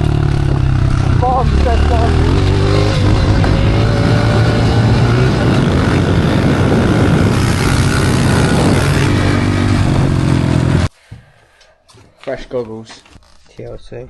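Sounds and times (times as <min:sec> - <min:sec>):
dirt bike engine running: 0:00.0 - 0:10.9.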